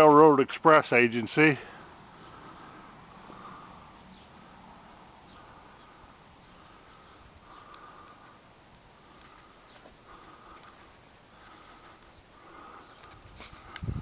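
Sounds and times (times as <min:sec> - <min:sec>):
faint bird chirps: 0:02.1 - 0:08.3.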